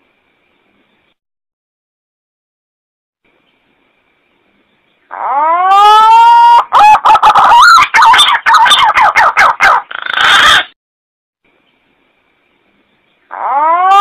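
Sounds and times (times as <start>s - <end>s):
warbling bird call whistle: 5.1s - 10.7s, 13.3s - 14.0s.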